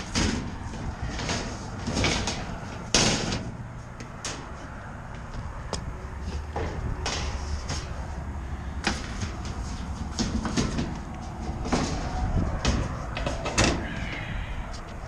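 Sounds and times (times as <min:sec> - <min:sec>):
sheet metal panels clanking: 0:00.0 - 0:15.0.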